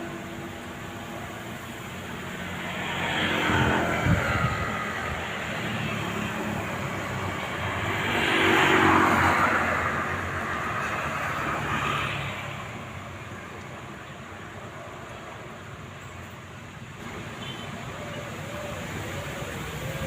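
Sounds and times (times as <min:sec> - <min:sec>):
strong wind gusts: 0:00.0 - 0:13.0, 0:17.0 - 0:20.0.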